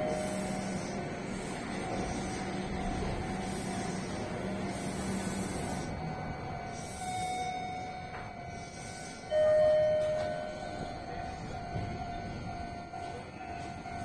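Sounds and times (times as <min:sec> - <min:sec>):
electric train humming: 0:00.0 - 0:14.0
loud bell-like chime: 0:06.0 - 0:14.0.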